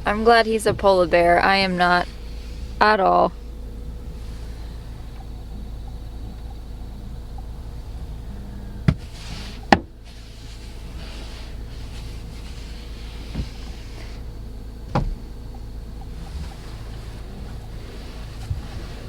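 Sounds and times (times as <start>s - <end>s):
knocks and thuds against car: 0.0s - 3.6s, 4.9s - 10.2s, 13.0s - 19.0s
low rumble: 0.0s - 19.0s.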